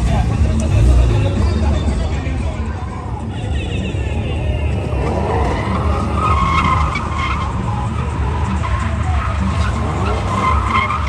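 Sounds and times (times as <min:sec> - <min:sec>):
car engine revving: 0:00.0 - 0:03.2, 0:04.5 - 0:11.0
tyres squealing: 0:04.9 - 0:11.0.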